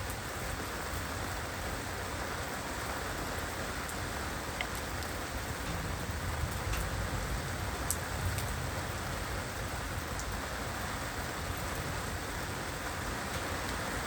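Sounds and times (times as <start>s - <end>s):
heavy rain hiss: 0.0s - 14.0s
raindrops striking close by: 0.0s - 14.0s.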